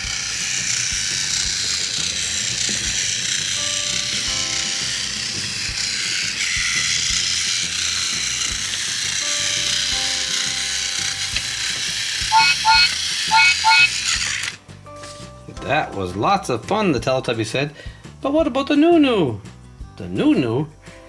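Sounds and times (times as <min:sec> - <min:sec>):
toy train motor whirring: 0:00.0 - 0:14.7
soft background music: 0:00.1 - 0:21.0
short high beeps: 0:12.3 - 0:13.9.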